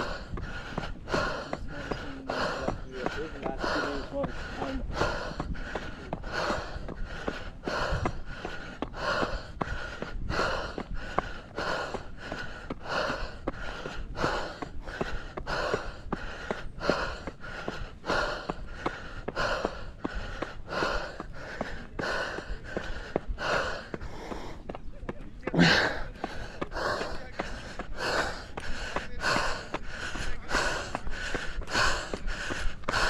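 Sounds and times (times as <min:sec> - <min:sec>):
footsteps on a trail: 0:00.0 - 0:33.0
heavy rapid breathing: 0:00.0 - 0:33.0
wind on microphone: 0:04.4 - 0:12.3.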